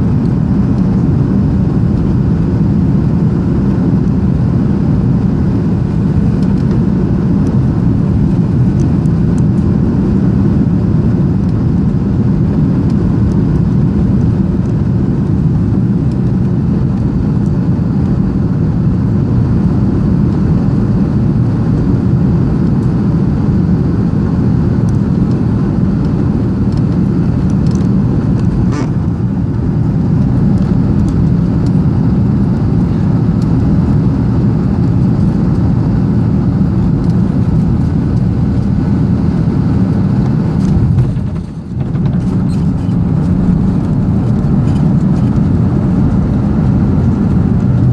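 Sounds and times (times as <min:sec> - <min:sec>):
airplane cabin engine noise: 0:00.0 - 0:47.9.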